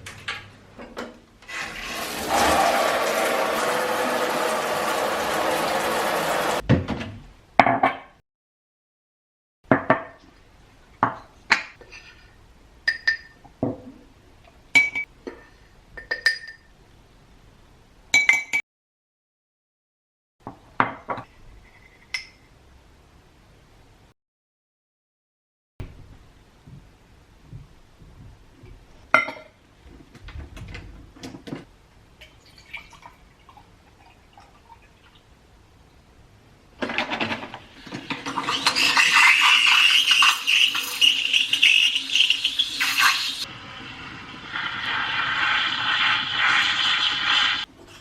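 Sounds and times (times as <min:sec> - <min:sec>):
water running: 0:01.4 - 0:06.6, 0:32.2 - 0:35.2, 0:37.6 - 0:48.0.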